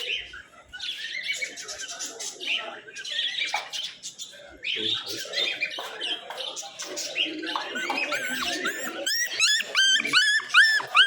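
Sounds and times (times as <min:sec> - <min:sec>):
birds chirping and squawking: 0:00.0 - 0:11.0
puppy whimpering: 0:07.6 - 0:11.0.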